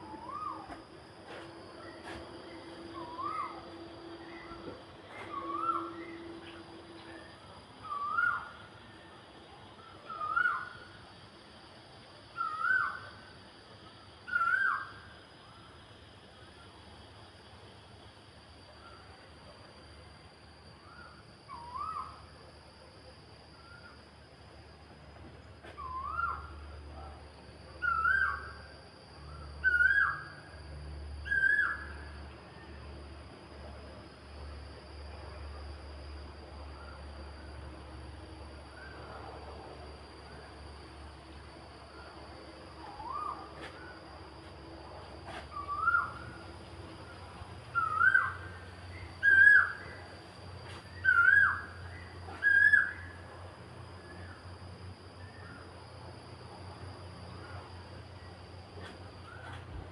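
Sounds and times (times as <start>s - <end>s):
steady low hum: 0.0s - 59.9s
whistled calls: 0.1s - 0.8s, 2.5s - 6.6s, 7.8s - 8.6s, 9.8s - 10.9s, 20.8s - 22.2s, 25.8s - 26.7s, 27.8s - 28.6s, 29.2s - 30.4s, 31.2s - 32.0s, 42.8s - 44.0s, 45.5s - 50.2s, 50.8s - 53.3s.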